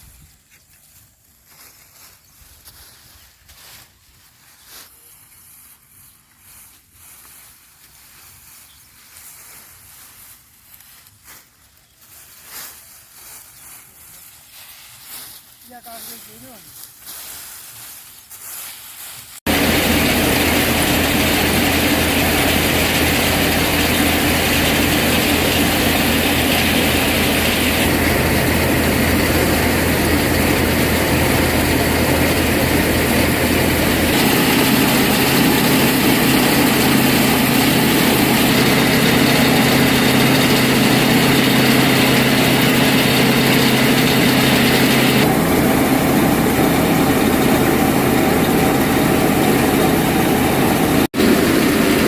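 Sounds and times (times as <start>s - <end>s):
tractor engine and thresher machinery: 19.5s - 52.0s.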